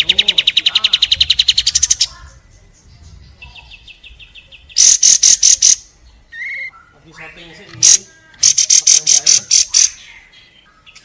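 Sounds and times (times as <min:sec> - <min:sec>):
bird trilling: 0:00.0 - 0:11.0
sharp high bird notes: 0:04.7 - 0:10.3.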